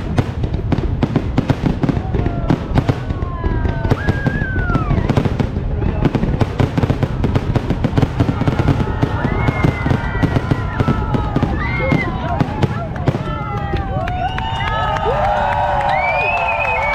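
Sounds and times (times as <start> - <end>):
fireworks bangs and crackles: 0.0 - 16.9
fireworks whistles: 3.9 - 6.8, 8.1 - 12.1.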